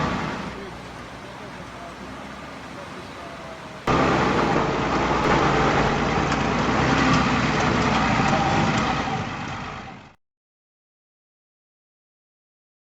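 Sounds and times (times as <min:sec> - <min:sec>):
road noise: 0:00.0 - 0:10.2
truck engine running: 0:00.0 - 0:10.2.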